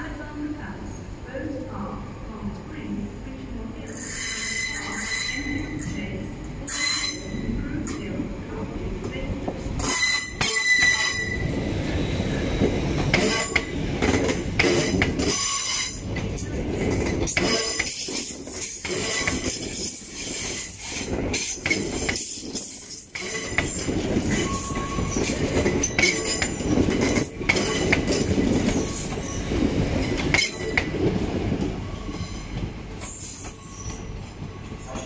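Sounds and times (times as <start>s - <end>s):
train wheels squealing and clicking: 3.9s - 5.9s, 6.7s - 8.0s, 9.8s - 11.6s, 13.0s - 31.0s, 31.6s - 35.0s.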